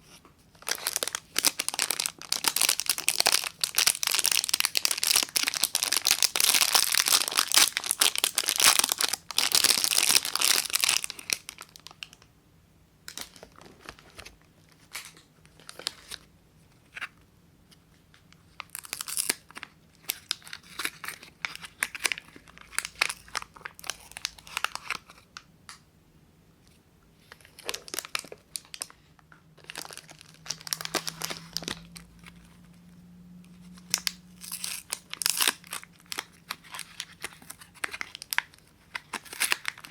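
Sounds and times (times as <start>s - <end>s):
wrapper tearing and crinkling: 0.6s - 12.2s, 18.6s - 25.2s, 27.4s - 28.9s, 29.6s - 32.4s, 33.8s - 39.9s.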